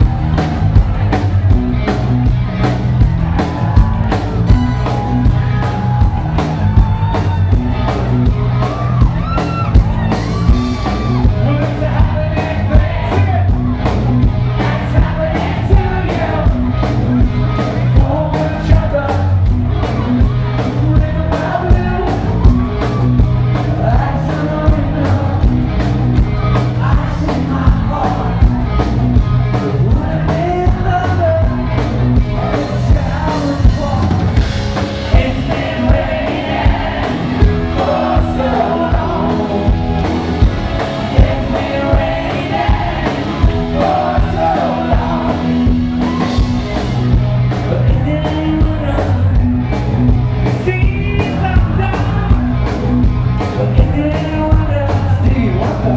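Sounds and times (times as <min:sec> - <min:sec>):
live rock band playing: 0:00.0 - 0:55.9
steady drum beat: 0:00.0 - 0:55.9
person singing: 0:29.5 - 0:46.7.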